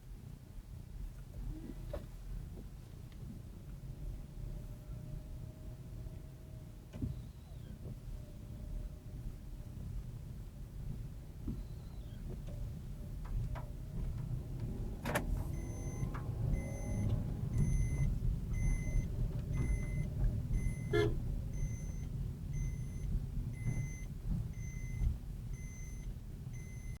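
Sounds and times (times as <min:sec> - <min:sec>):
car engine and road rumble: 0:00.1 - 0:27.0
electronic warning beeps: 0:15.5 - 0:27.0.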